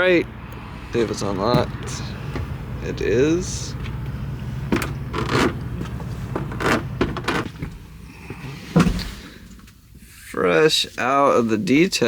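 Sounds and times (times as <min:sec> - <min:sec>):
low engine hum: 0:00.0 - 0:10.1
heavy door thump: 0:01.0 - 0:02.8, 0:08.7 - 0:09.2.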